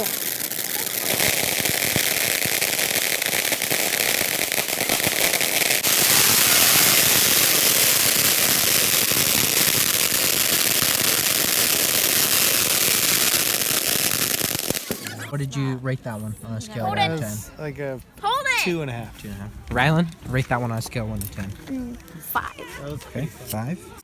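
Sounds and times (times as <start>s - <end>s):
fireworks crackling: 0.0s - 15.4s.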